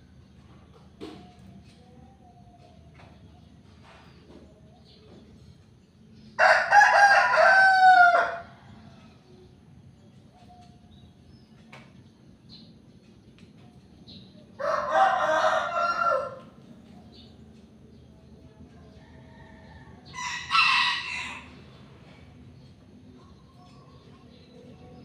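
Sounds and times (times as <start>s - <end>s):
rooster crowing: 6.4s - 8.7s, 14.6s - 16.6s, 19.0s - 21.6s.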